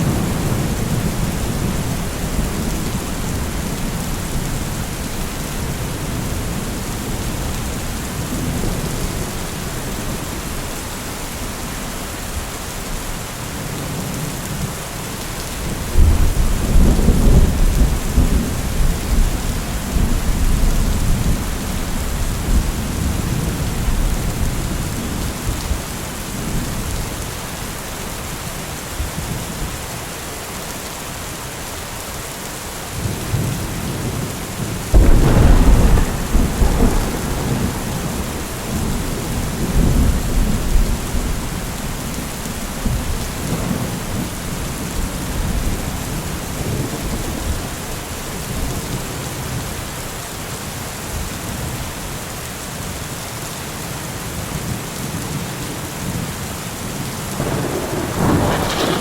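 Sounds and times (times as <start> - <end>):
steady rain falling: 0.0 - 59.0
rolling thunder: 33.3 - 47.6, 57.3 - 59.0.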